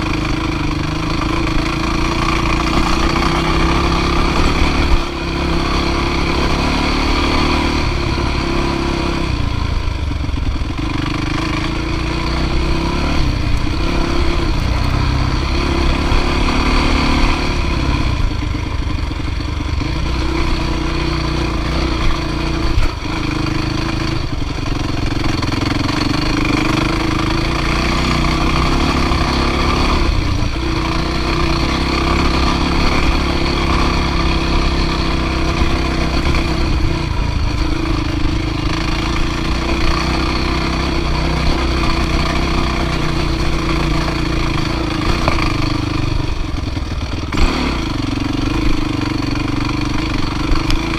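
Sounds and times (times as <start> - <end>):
dirt bike engine under load: 0.2 - 9.2, 21.6 - 50.9.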